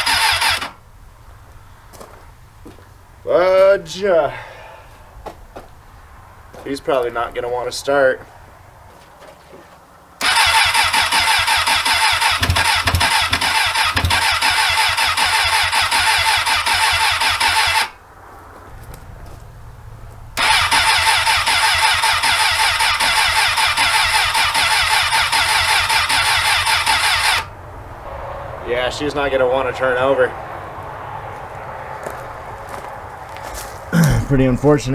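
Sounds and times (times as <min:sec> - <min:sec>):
motorcycle starter cranking engine: 0:00.0 - 0:01.2, 0:10.2 - 0:18.0, 0:20.3 - 0:27.6.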